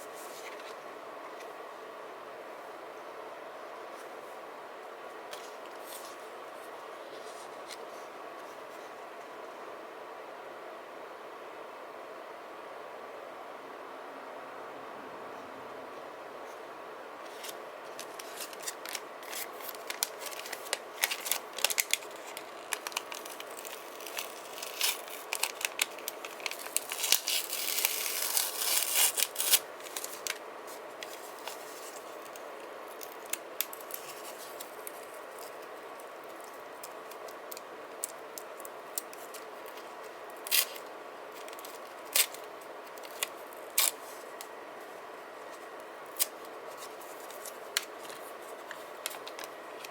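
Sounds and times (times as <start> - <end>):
faint steady hum: 0.0 - 49.9
paper crinkling and scraping: 0.1 - 0.8, 17.2 - 49.9.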